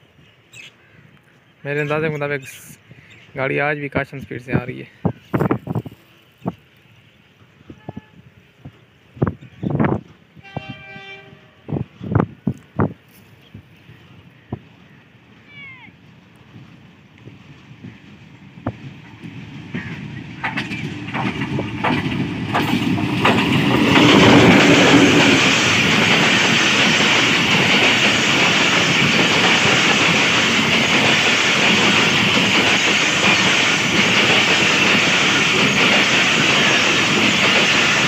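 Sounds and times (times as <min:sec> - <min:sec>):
train passing: 0:01.9 - 0:38.0
wheels clacking over rails: 0:18.0 - 0:38.0.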